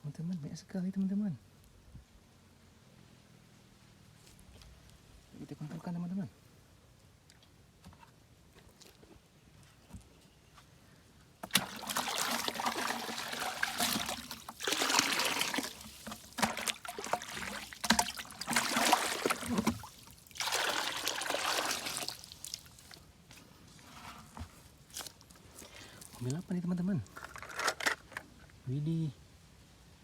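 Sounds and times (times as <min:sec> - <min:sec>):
water pouring and trickling: 0:11.4 - 0:23.1, 0:25.0 - 0:26.5.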